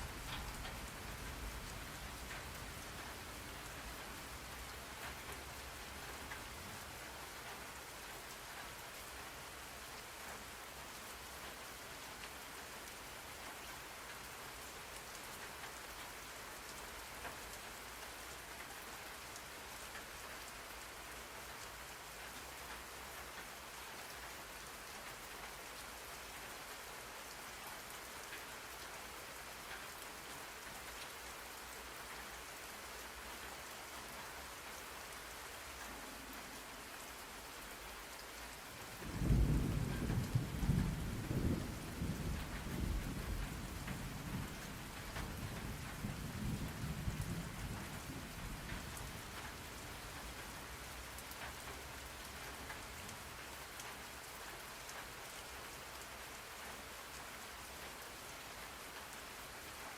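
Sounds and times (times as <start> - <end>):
steady rain: 0.0 - 59.9
low thunder rumble: 39.0 - 49.4.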